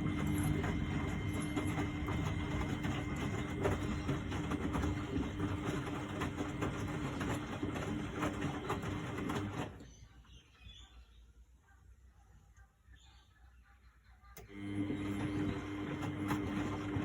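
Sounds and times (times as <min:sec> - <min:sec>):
washing machine running: 0:00.0 - 0:10.4, 0:14.4 - 0:17.0.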